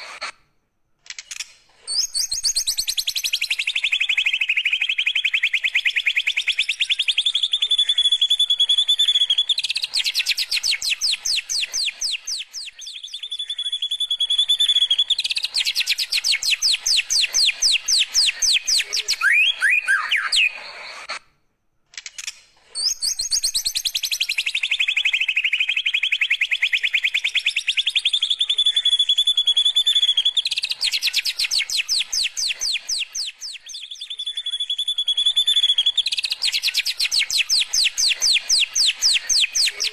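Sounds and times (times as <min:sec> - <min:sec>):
bird singing trills and whistles: 0:01.8 - 0:21.2, 0:22.8 - 0:39.9.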